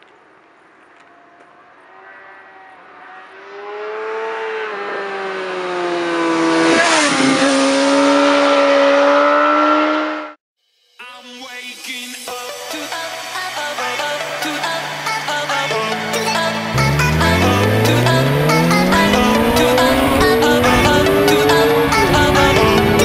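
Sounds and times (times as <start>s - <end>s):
motorcycle engine passing by: 1.1s - 10.4s, 15.7s - 23.0s
electronic music: 11.9s - 23.0s.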